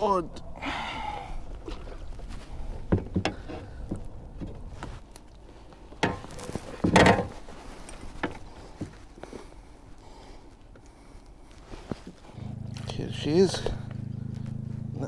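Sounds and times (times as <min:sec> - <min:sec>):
knocks and thumps on kayak: 0:06.0 - 0:07.4.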